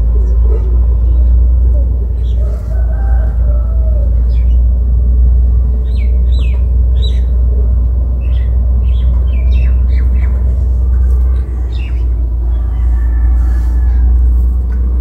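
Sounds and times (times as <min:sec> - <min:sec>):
loud low rumble: 0:00.0 - 0:15.0
small birds chirping: 0:05.8 - 0:07.5, 0:08.2 - 0:14.0.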